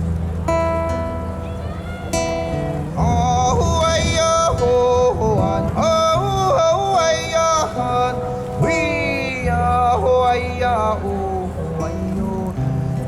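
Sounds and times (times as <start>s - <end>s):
man singing with ornamented notes: 2.9s - 13.0s.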